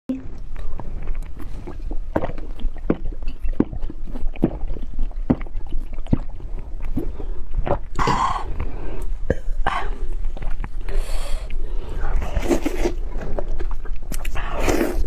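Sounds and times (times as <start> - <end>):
wet chewing smacks: 0.3 - 7.9.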